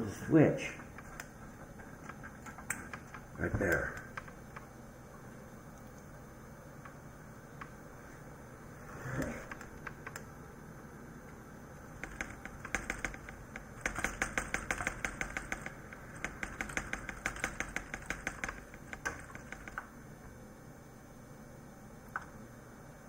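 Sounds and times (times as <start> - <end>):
keyboard key tapped rapidly: 0.8 - 4.7, 12.0 - 19.9.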